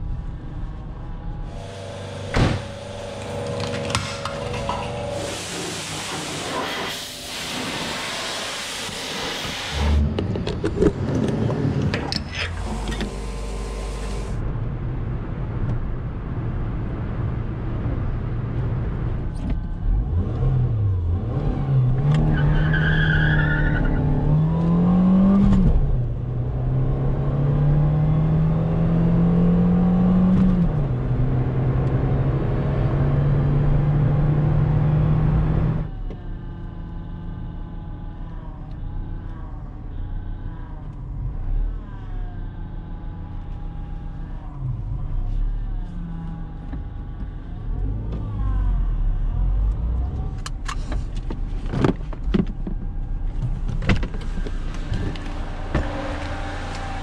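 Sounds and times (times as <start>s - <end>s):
rushing noise: 1.5s - 10.2s
car engine pulling under load: 1.5s - 14.4s, 19.3s - 57.0s.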